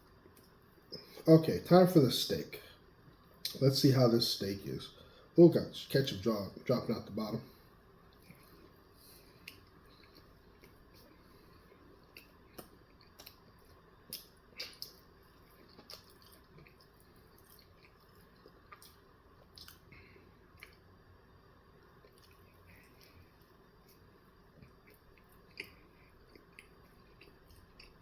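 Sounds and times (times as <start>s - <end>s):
person chewing wetly: 8.1s - 20.9s, 21.8s - 28.0s.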